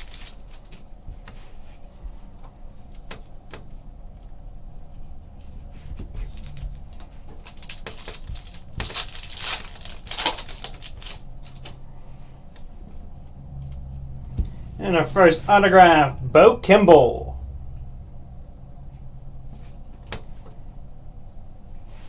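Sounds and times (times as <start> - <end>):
cards clicking and rustling: 0.0 - 0.9, 6.2 - 11.8.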